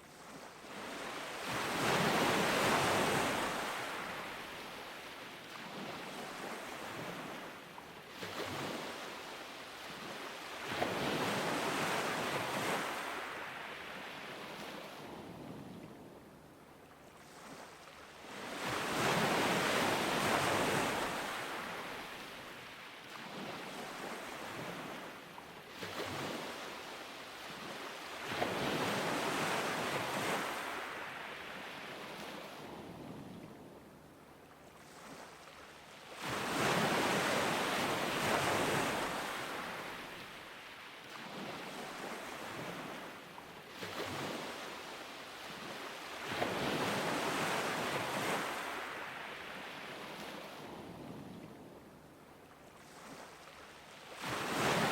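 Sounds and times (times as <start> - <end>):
ocean surf breaking on beach: 0.0 - 7.5, 18.3 - 33.4, 36.1 - 51.3, 54.0 - 54.9.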